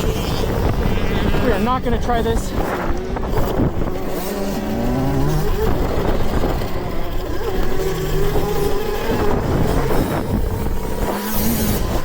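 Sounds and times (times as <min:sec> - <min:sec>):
electric motor whine: 0:00.0 - 0:12.0
wind and bumps rumble: 0:00.0 - 0:12.0.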